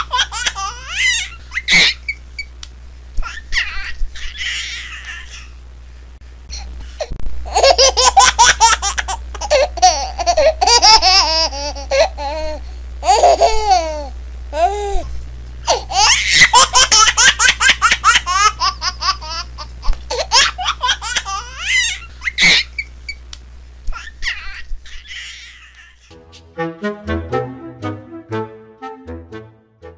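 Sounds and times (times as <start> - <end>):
baby giggling: 7.5 - 14.7.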